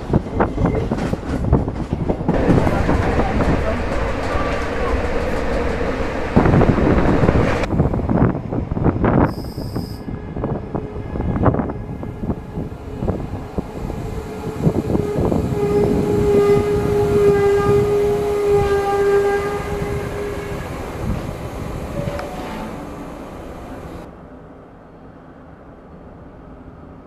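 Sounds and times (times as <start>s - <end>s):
train wheels squealing: 9.3s - 10.1s.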